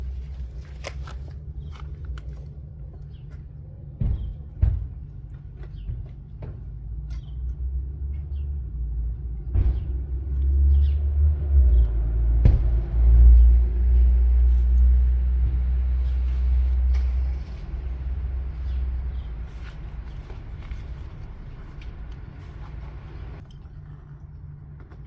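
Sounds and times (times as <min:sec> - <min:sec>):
motorcycle engine rumbling: 0:11.7 - 0:23.4.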